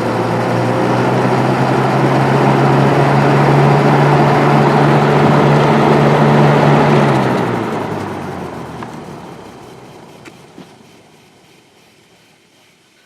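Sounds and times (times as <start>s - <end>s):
box fan running: 0.0s - 13.0s.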